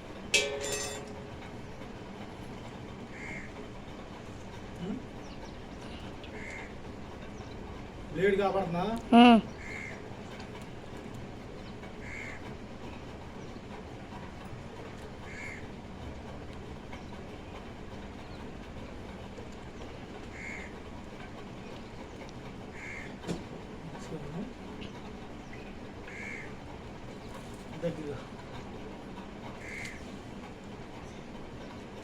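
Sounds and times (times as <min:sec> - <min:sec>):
crows cawing: 0:03.1 - 0:03.6, 0:06.3 - 0:06.8, 0:09.6 - 0:10.0, 0:12.0 - 0:12.4, 0:15.3 - 0:15.7, 0:20.3 - 0:20.8, 0:22.7 - 0:23.2, 0:26.1 - 0:26.6, 0:29.6 - 0:30.0.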